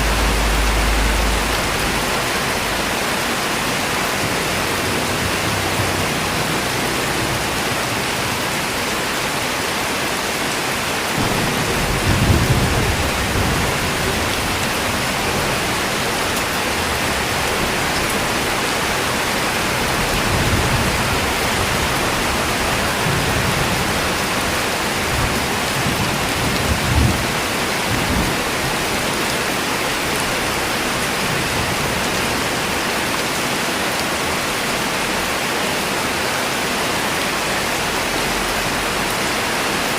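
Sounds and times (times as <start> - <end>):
steady rain hiss: 0.0 - 39.9
rumbles of thunder: 11.1 - 19.0.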